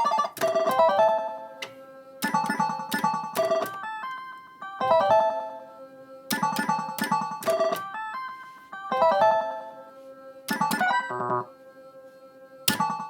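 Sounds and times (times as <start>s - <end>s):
slot machine beeps and chimes: 0.0s - 1.4s, 2.2s - 5.5s, 6.3s - 9.6s, 10.5s - 11.4s, 12.7s - 13.0s.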